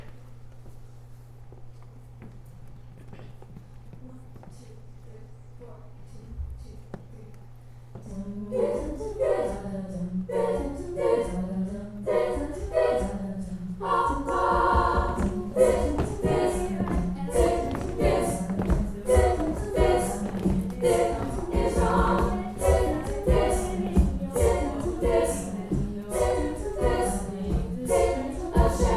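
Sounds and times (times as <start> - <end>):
a cappella group singing chords: 8.0 - 28.9
vocal percussion beat: 10.3 - 28.9.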